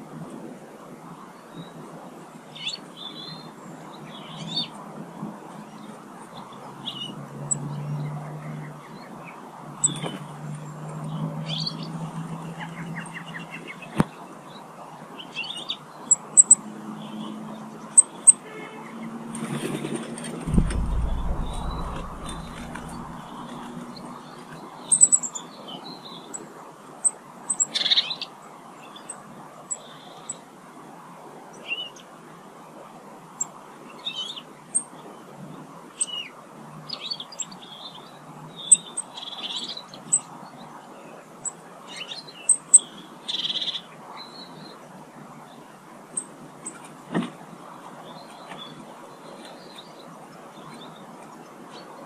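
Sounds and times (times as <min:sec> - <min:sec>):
brief knock: 0:20.5 - 0:23.3.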